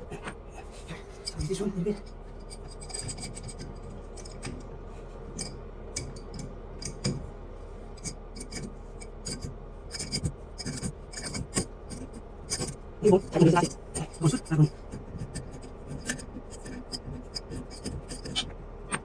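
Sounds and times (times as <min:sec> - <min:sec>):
plastic parts clicking and scraping: 0:09.3 - 0:19.0.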